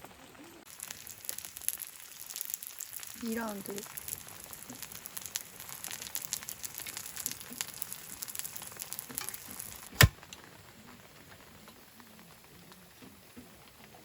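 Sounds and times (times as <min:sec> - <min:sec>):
batter sizzling in oil: 0:00.0 - 0:14.0
sharp knock: 0:10.0 - 0:10.2.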